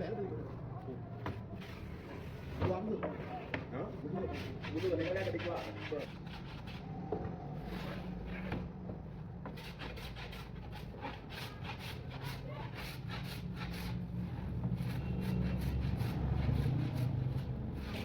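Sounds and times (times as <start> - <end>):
rubbing strokes on wood: 4.3 - 6.8.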